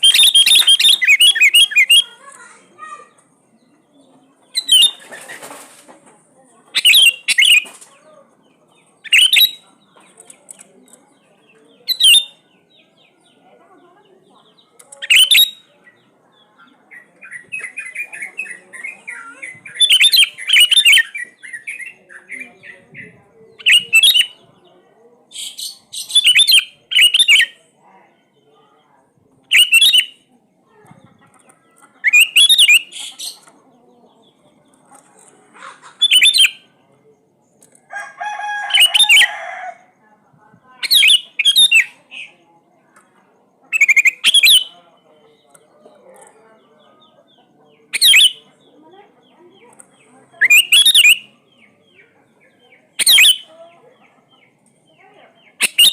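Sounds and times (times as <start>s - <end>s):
bird singing whistled phrases: 0.0s - 2.1s, 4.6s - 5.0s, 6.8s - 7.7s, 9.0s - 9.6s, 11.9s - 12.4s, 15.0s - 15.6s, 19.7s - 22.0s, 23.6s - 24.4s, 25.4s - 27.6s, 29.5s - 30.2s, 32.1s - 32.9s, 36.0s - 36.6s, 40.8s - 42.0s, 43.7s - 44.7s, 48.0s - 48.4s, 50.4s - 51.3s, 53.0s - 53.5s, 55.6s - 55.9s
buzzy bird call: 0.0s - 2.2s, 6.8s - 7.9s, 25.3s - 27.5s, 29.5s - 30.2s, 32.0s - 33.4s, 35.5s - 36.7s, 38.7s - 39.4s, 40.8s - 42.3s, 43.7s - 44.7s, 47.9s - 48.4s, 50.4s - 51.3s, 53.0s - 53.5s, 55.6s - 55.9s
bird chattering softly: 0.0s - 5.8s, 6.5s - 12.4s, 13.1s - 28.4s, 29.0s - 37.9s, 40.3s - 55.9s.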